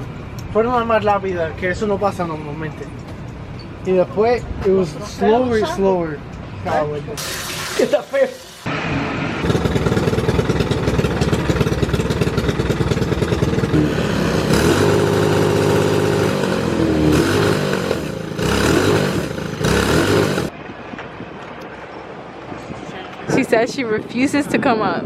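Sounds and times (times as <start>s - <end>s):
go-kart engine running hard: 9.4s - 20.5s.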